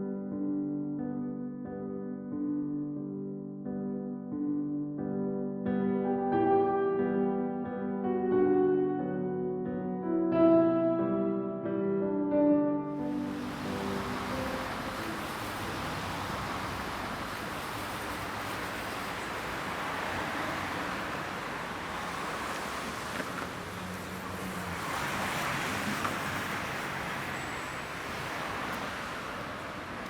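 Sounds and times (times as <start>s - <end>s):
passing cars hiss: 13.0s - 30.0s.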